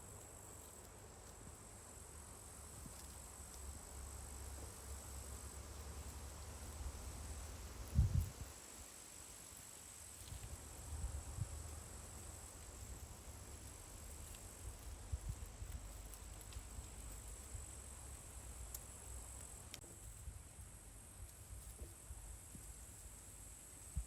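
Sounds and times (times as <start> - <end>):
crickets chirring: 0.0 - 24.0
faint clicks: 13.6 - 17.4.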